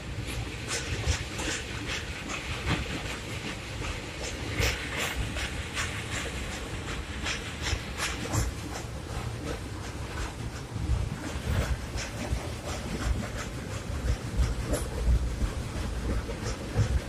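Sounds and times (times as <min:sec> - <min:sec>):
train rumbling on track: 0:00.0 - 0:17.0
train wheels clacking on rails: 0:00.0 - 0:17.0.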